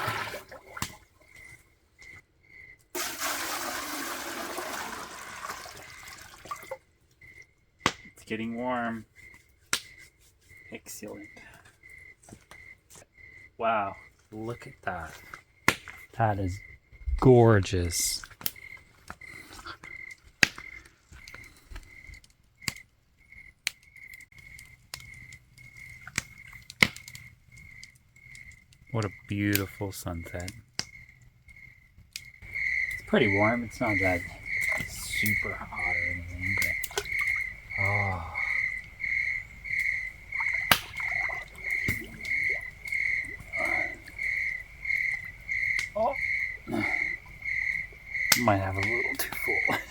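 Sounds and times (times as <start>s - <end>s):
water sloshing in a bathtub: 0.0s - 1.6s, 3.0s - 6.9s, 32.4s - 49.9s
campfire crackling and popping: 0.0s - 2.2s, 2.8s - 49.9s
crickets chirping: 0.0s - 49.9s.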